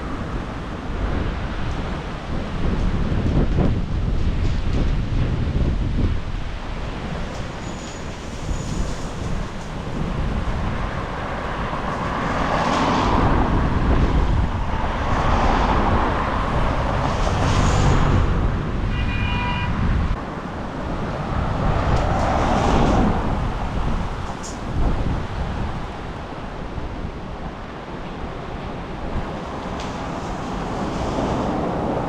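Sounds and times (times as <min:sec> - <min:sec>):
wind buffeting microphone: 0:00.0 - 0:32.0
vehicles passing on wet road: 0:06.4 - 0:32.0.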